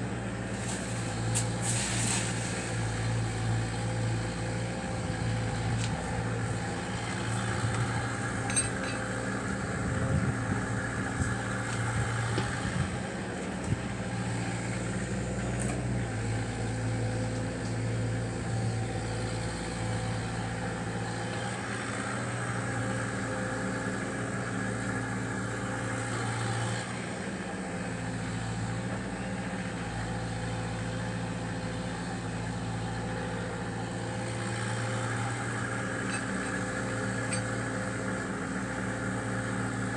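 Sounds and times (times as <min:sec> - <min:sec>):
diesel engine running: 0:00.0 - 0:39.9
metal clanks and knocks: 0:07.7 - 0:09.1.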